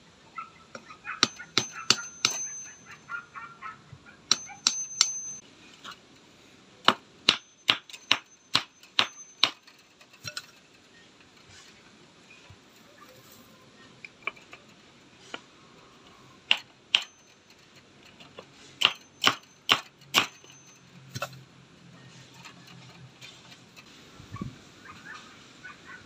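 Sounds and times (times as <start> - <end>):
faint metallic ring: 1.3 - 3.2, 4.3 - 6.4, 7.4 - 13.6, 14.2 - 23.9.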